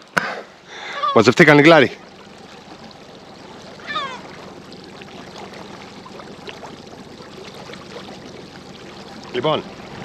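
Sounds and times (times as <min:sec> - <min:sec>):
water lapping against boat hull: 0:00.0 - 0:10.0
gull call: 0:03.8 - 0:04.3.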